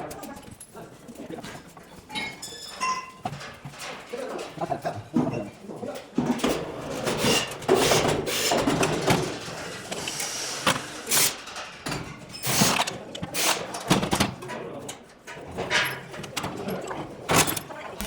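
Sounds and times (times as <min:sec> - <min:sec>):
metal parts knocking and clattering: 0:10.6 - 0:18.0.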